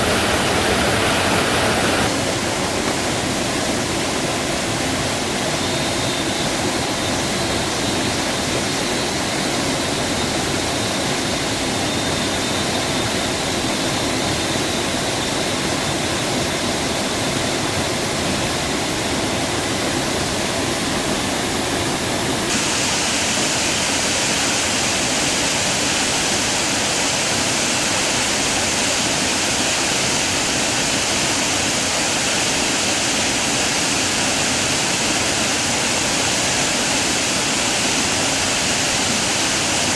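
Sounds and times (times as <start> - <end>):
waterfall rushing: 0.0 - 4.2, 22.4 - 39.9.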